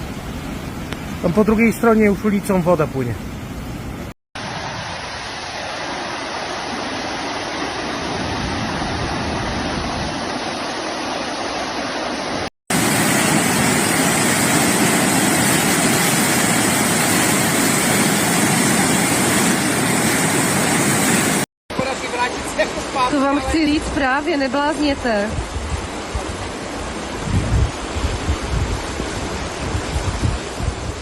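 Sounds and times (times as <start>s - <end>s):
floodwater rushing: 0.0s - 31.0s.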